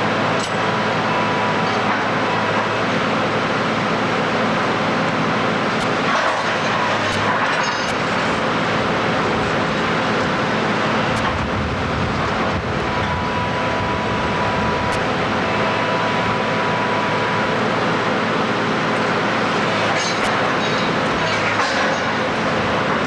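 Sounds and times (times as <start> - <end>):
heavy machinery running: 0.0 - 23.0.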